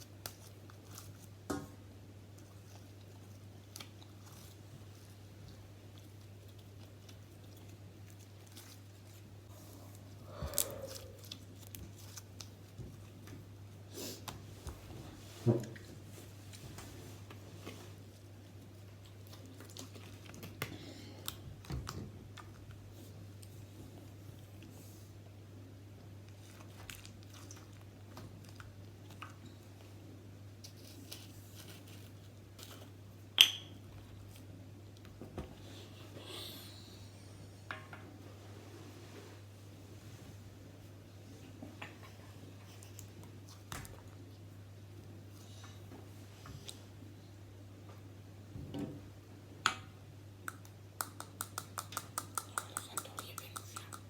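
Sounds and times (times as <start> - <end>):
steady low hum: 9.0 - 13.9.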